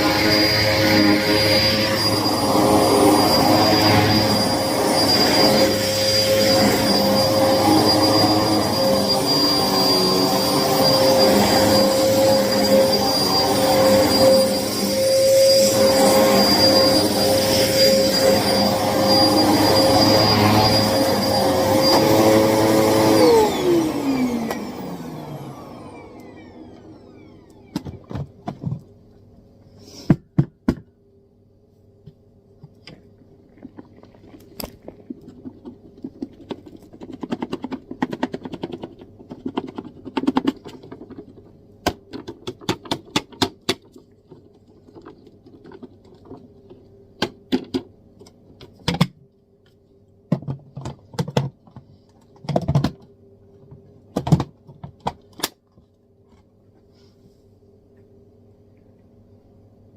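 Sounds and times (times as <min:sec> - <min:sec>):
vacuum cleaner running: 0:00.0 - 0:28.8.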